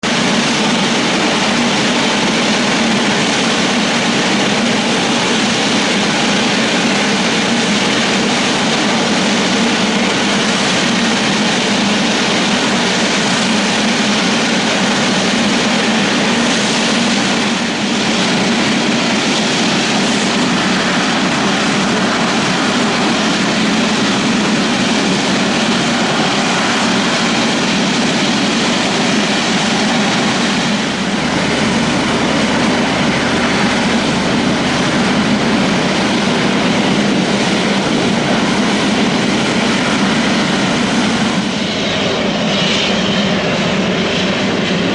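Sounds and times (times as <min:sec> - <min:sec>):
jet engines running: 0:00.0 - 0:44.9.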